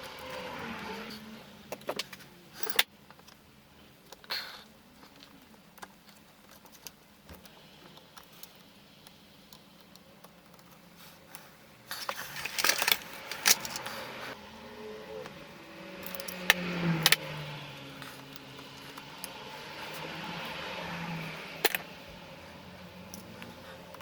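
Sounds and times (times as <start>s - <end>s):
metal parts and tools clattering: 1.7s - 3.4s, 12.0s - 14.0s, 16.0s - 17.3s.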